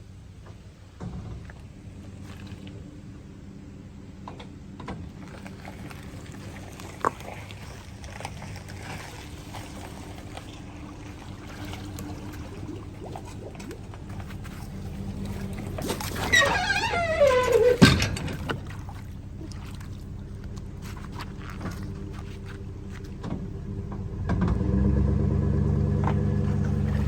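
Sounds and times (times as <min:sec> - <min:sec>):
low steady hum: 0:00.0 - 0:27.0
water lapping against boat hull: 0:00.0 - 0:27.0.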